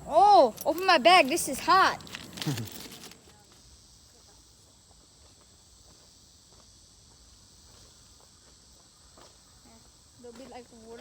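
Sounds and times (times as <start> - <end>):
high-pitched insect chorus: 0.0 - 11.0
footsteps on gravel: 0.6 - 3.2.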